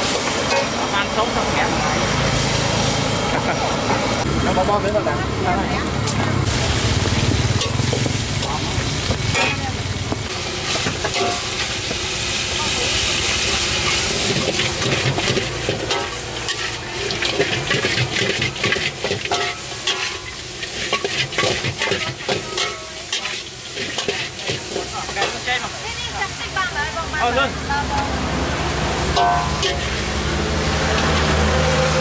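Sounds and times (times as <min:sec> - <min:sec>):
utensils clacking on cookware: 0:00.0 - 0:01.1, 0:09.2 - 0:11.9, 0:13.7 - 0:25.5, 0:29.1 - 0:30.2
food sizzling: 0:00.0 - 0:32.0.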